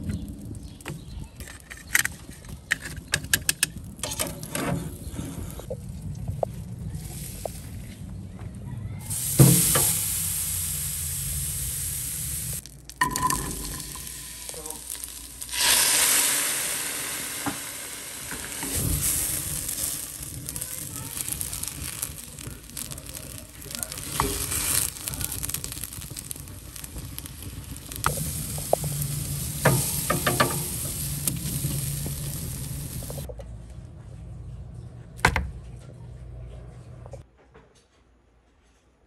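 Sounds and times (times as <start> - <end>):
steak searing on a grill: 9.0 - 12.8, 13.6 - 33.3
onions frying in a pan: 9.0 - 33.3.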